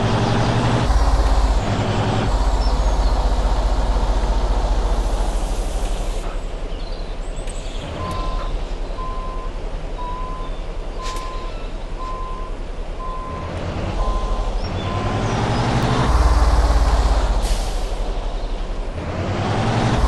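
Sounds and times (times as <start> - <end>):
truck engine running: 0.0 - 20.0
truck reversing alarm beeping: 8.0 - 15.3.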